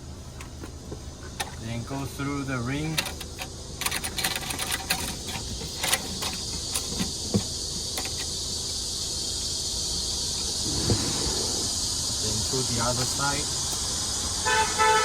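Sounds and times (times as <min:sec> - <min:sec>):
steady high hiss: 0:06.2 - 0:14.9.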